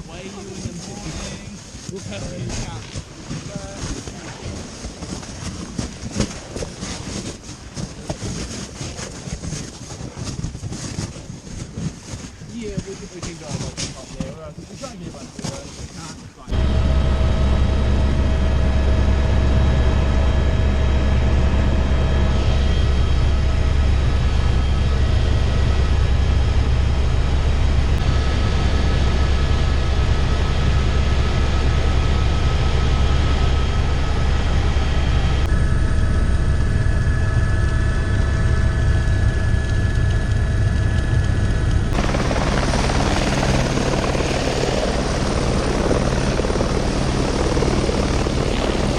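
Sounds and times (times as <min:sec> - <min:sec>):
helicopter rotor and engine drone: 0:00.0 - 0:48.9.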